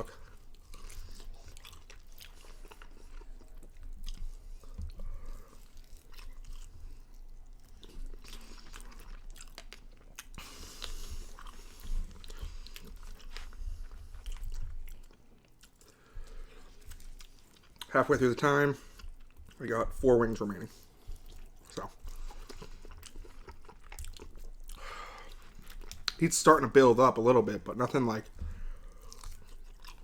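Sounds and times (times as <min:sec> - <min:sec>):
chewing chicken wings: 0:00.0 - 0:30.0.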